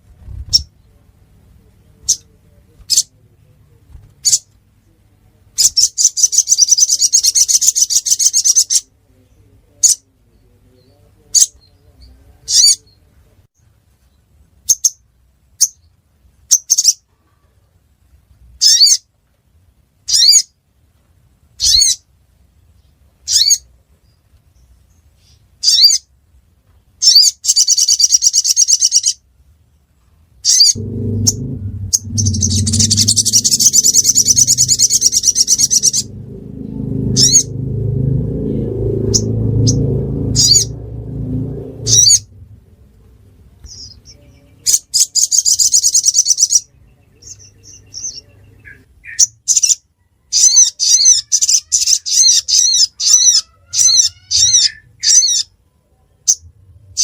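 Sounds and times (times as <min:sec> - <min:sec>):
bird chirping: 0:00.2 - 0:01.0, 0:30.5 - 0:49.8
rapid bird trill: 0:30.5 - 0:36.2.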